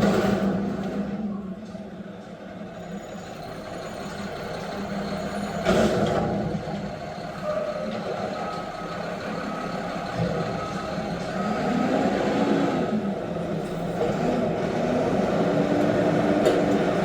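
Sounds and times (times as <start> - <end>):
garbage truck engine running: 0.0 - 17.0
reversing alarm beeps: 8.4 - 11.6.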